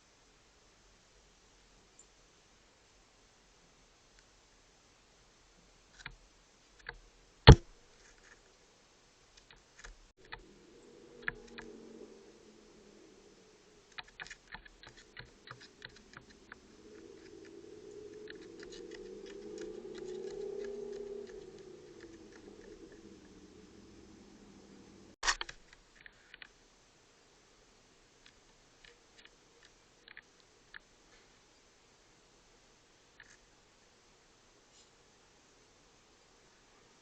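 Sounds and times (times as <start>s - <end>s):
low wavering drone: 10.2s - 25.2s.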